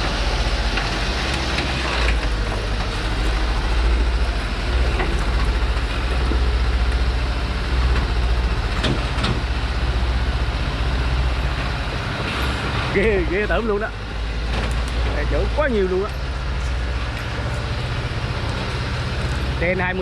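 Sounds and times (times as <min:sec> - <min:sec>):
truck knocking: 0:00.0 - 0:09.9
truck engine deep rumble: 0:00.0 - 0:20.0.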